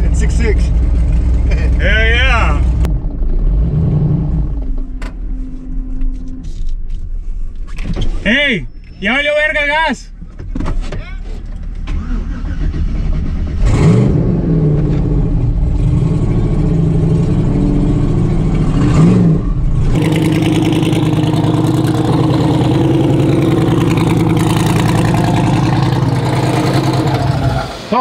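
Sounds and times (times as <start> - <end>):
engine revving: 0.0 - 4.8, 11.9 - 27.8
truck engine running: 14.6 - 27.8.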